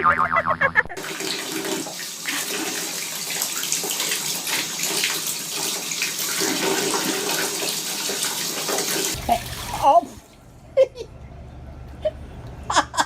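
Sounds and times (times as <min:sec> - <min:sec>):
tap water filling bathtub: 0:01.0 - 0:10.6.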